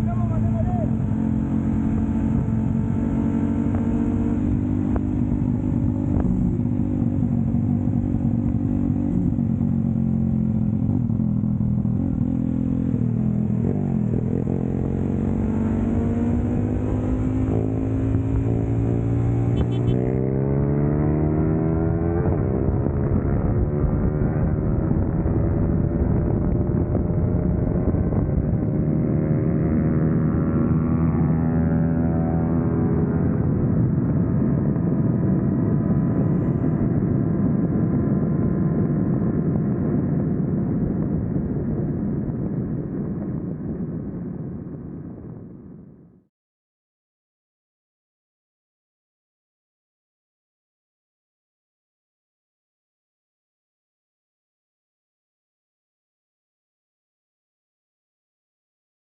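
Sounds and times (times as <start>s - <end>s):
motorcycle engine revving: 0.0s - 42.3s.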